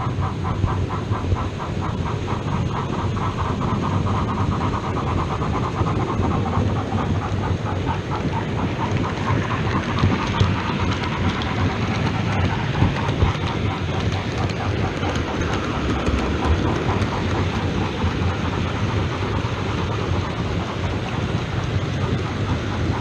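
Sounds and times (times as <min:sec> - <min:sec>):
model train wheels rumbling on rail: 0:00.0 - 0:23.0.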